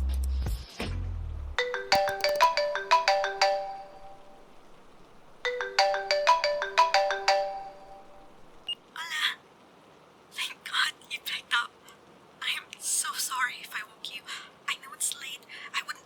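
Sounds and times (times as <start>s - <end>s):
phone ringtone melody: 1.6s - 4.6s, 5.5s - 8.6s.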